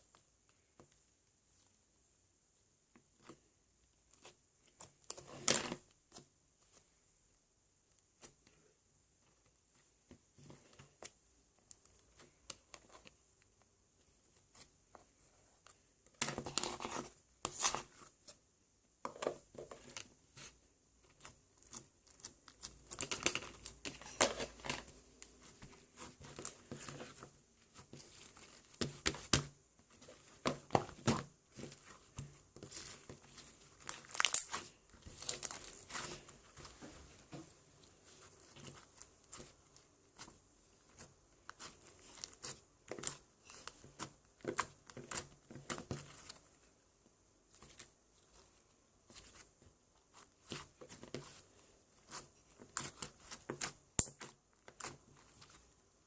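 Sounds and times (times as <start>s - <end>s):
crinkling and rustling: 19.0s - 46.8s, 47.4s - 56.0s.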